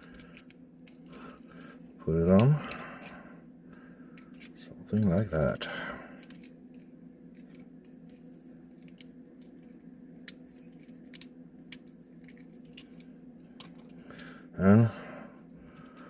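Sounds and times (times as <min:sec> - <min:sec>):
plastic toy parts clicking: 0:00.0 - 0:01.8, 0:02.4 - 0:03.2, 0:06.2 - 0:14.3
steady low hum: 0:00.0 - 0:16.0.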